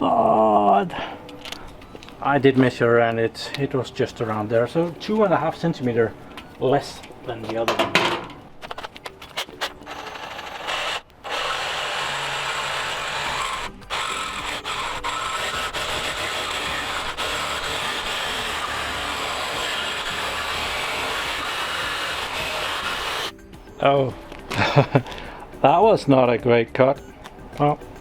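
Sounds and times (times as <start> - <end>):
power saw cutting pipe: 9.4 - 23.3.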